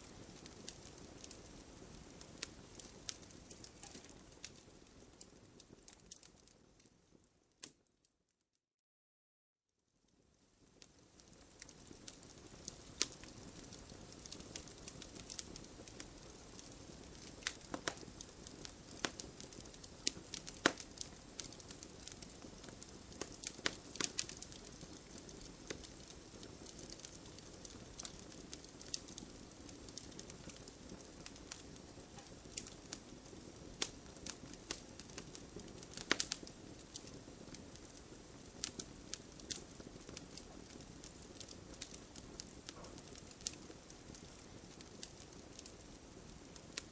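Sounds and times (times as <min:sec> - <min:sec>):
low hiss: 0:00.0 - 0:06.4
wood fire crackling and popping: 0:00.0 - 0:07.9, 0:10.1 - 0:46.9.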